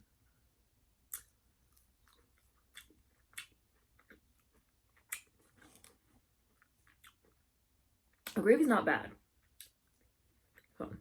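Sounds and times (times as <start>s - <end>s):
chewing with wet mouth clicks: 1.1s - 7.4s.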